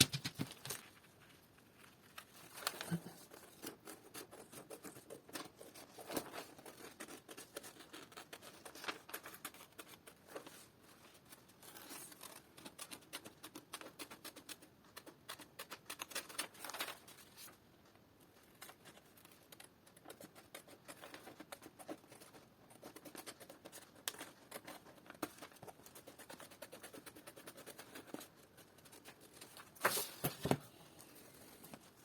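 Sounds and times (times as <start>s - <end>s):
material handling noise: 28.1s - 32.0s.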